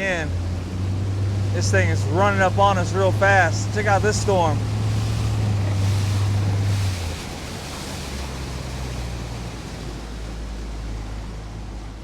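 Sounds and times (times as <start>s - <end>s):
boat motor running: 0.0s - 12.0s
water rushing: 0.0s - 12.0s.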